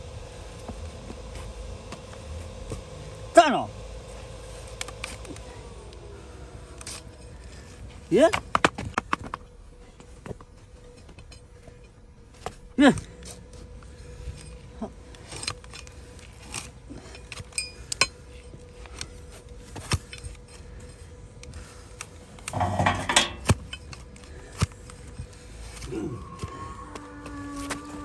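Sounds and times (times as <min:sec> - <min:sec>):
hoof-trimming tools scraping: 0:04.1 - 0:28.0.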